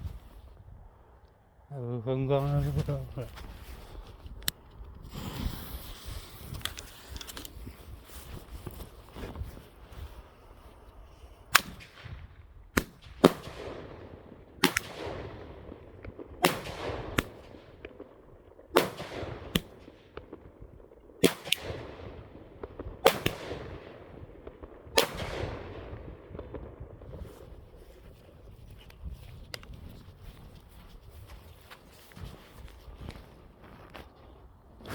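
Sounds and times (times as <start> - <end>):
fireworks bangs with echo: 11.5 - 20.6, 21.2 - 27.7.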